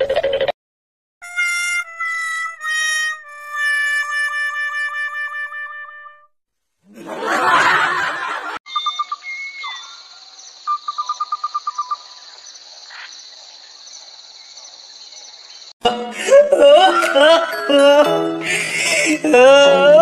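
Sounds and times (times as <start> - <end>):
bird chirps: 8.7 - 15.7
music with singing: 15.8 - 20.0.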